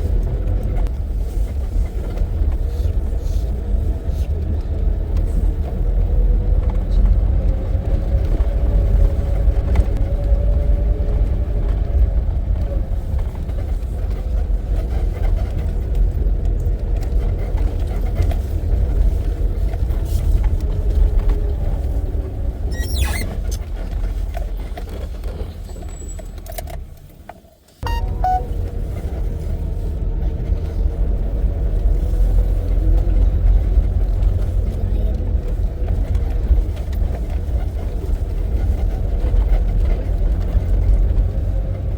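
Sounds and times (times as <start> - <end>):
vehicle engine and road rumble: 0.0 - 41.9
faint engine hum: 27.8 - 41.9.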